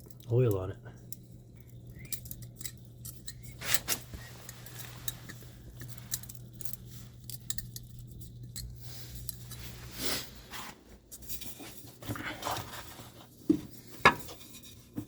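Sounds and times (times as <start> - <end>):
metal tools clinking: 1.1 - 9.8.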